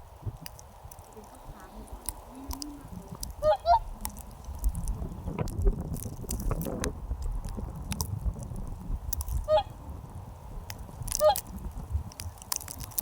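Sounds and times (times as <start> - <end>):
low rumbling noise: 0.0 - 13.0
scattered clicks: 0.4 - 9.6, 10.6 - 13.0
bird honking call: 3.4 - 4.0, 9.5 - 9.8.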